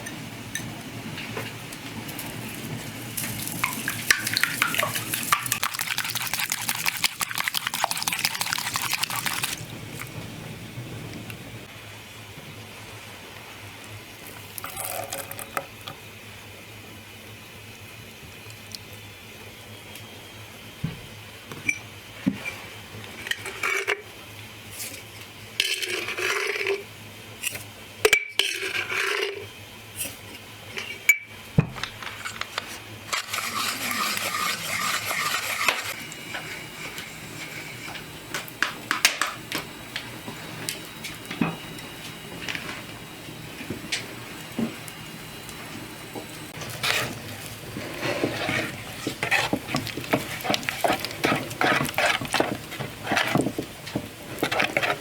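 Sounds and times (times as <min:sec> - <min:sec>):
utensil scraping: 0:02.7 - 0:09.6, 0:33.1 - 0:37.9, 0:46.6 - 0:53.6.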